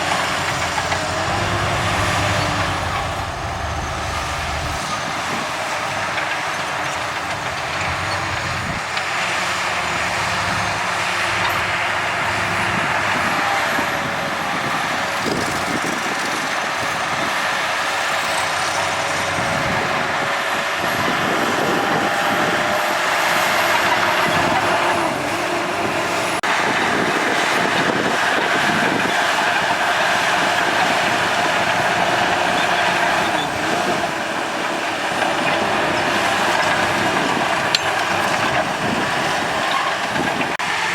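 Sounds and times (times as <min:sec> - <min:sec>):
metallic squeal and clatter: 0:00.0 - 0:09.1, 0:26.1 - 0:40.6
bulldozer diesel engine under load: 0:00.0 - 0:40.9.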